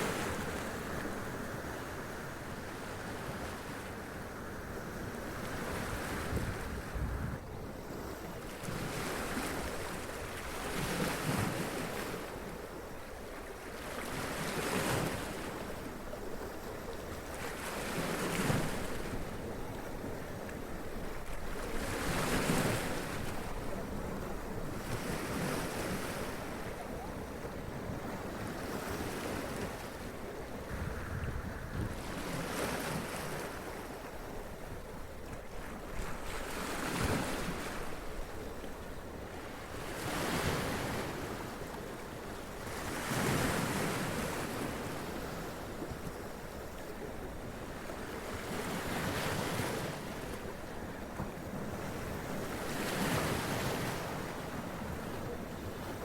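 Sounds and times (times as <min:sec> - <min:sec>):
wind on microphone: 0:05.6 - 0:07.6, 0:30.6 - 0:33.1
roar of surf: 0:30.5 - 0:33.3.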